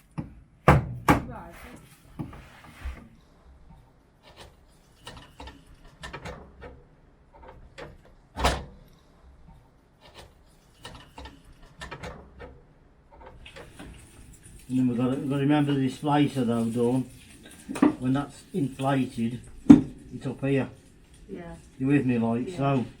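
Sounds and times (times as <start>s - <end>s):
loud knock: 0.2s - 1.4s.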